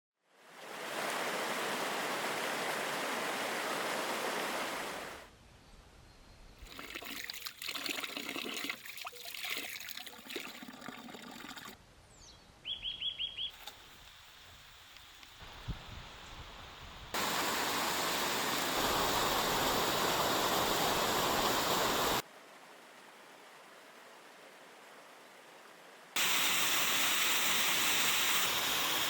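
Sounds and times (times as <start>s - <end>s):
water rushing: 0.4s - 5.3s, 6.6s - 11.8s, 17.1s - 22.2s, 26.2s - 29.0s.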